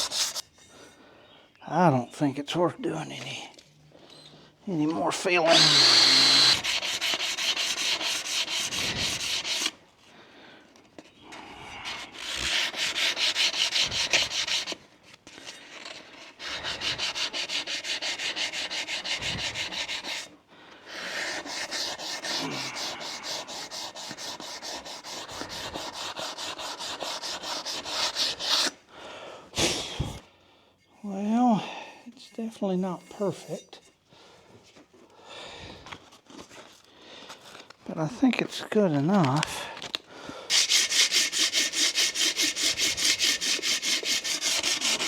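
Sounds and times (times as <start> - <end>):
power sander rasping on metal: 4.8 - 9.7, 40.5 - 45.0.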